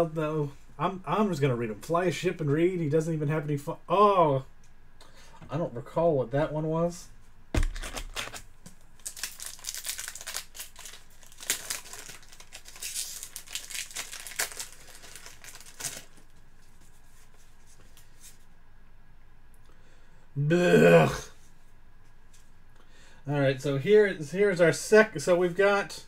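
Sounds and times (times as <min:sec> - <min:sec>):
dull thump: 0:07.5 - 0:07.9
wrapper crinkling and tearing: 0:07.6 - 0:08.4, 0:09.0 - 0:16.4.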